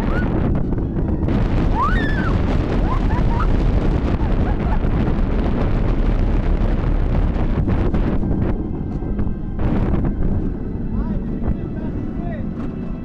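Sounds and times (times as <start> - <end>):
high rising squeals: 0.0 - 5.9
roller coaster rumbling on track: 0.0 - 13.0
wind rushing over microphone: 0.0 - 13.0.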